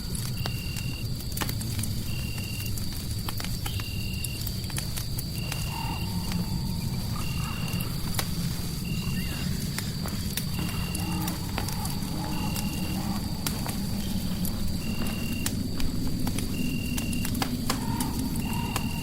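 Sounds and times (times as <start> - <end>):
fire crackling: 0.0 - 19.0
low rumble: 5.3 - 19.0.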